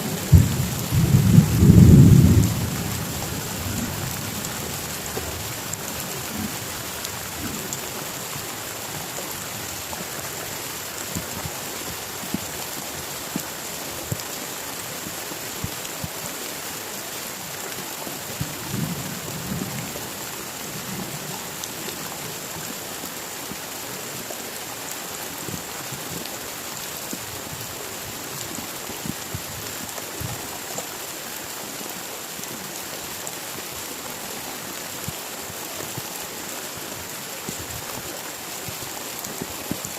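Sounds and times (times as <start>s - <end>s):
heavy rain: 0.0s - 39.9s
thunder rolling: 0.1s - 4.4s
rain drop ticks: 0.2s - 14.4s.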